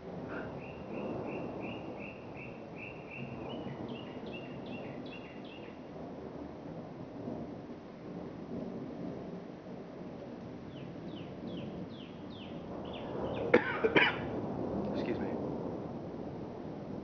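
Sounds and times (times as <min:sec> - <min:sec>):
songbird whistling: 0:00.4 - 0:05.7.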